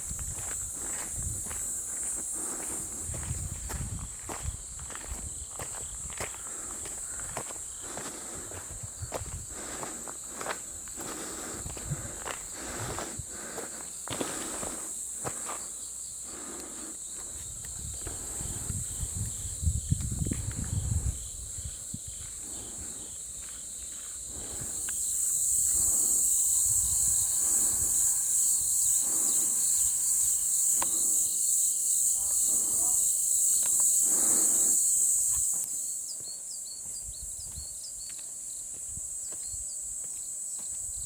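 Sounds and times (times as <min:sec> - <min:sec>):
insects droning: 0:00.0 - 0:41.0
footsteps: 0:00.1 - 0:18.6, 0:22.2 - 0:31.2.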